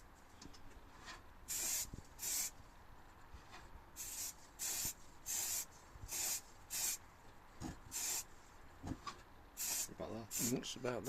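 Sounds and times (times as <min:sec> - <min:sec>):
spray paint hissing bursts: 0:01.5 - 0:02.6, 0:04.0 - 0:07.0, 0:07.9 - 0:08.3, 0:09.6 - 0:10.6.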